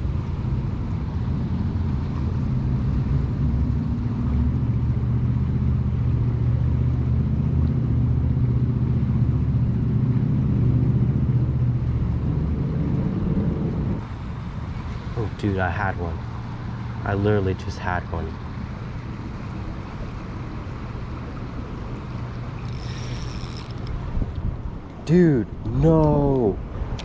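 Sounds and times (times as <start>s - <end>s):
engine humming: 18.2s - 25.0s.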